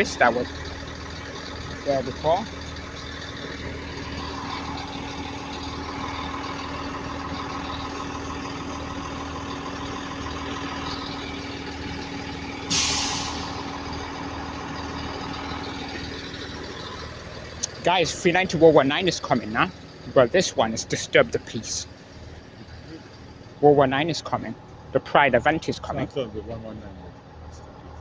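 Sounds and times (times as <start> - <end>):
train idling hum: 0.0 - 23.7
air brake hissing: 12.6 - 13.8.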